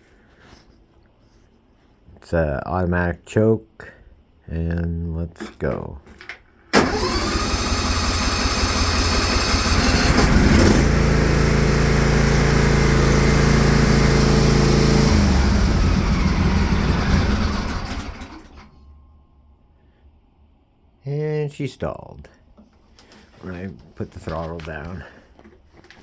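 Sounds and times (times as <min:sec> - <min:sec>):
tractor engine starting and running: 0:06.7 - 0:19.0.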